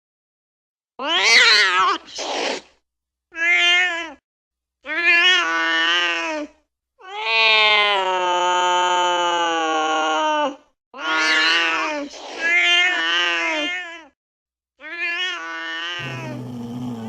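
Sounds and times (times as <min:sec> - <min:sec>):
angry cat yowling: 0:15.8 - 0:17.0
cat hissing: 0:16.0 - 0:17.0.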